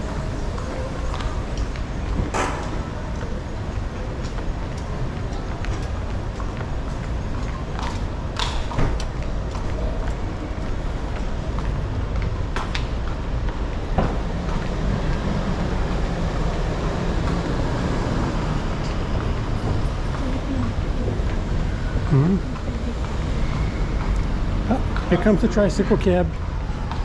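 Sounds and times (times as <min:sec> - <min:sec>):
rumble of passing traffic: 0:00.0 - 0:27.0
sharp knocks: 0:02.2 - 0:03.8.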